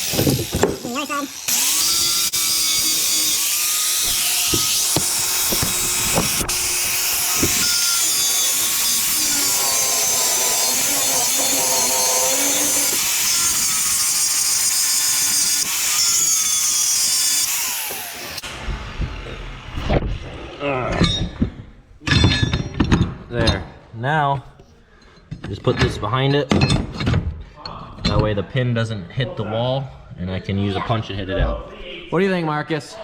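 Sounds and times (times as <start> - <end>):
grinder cutting metal: 0.0 - 19.8.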